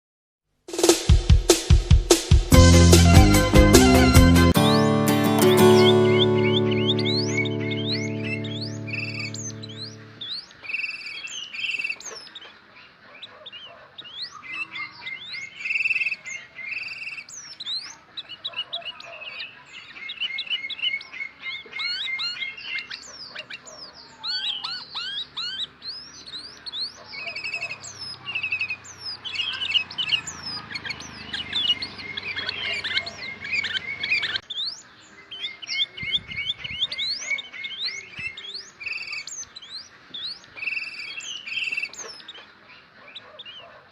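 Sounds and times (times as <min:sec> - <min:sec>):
bulbul chirping: 0:03.1 - 0:11.0.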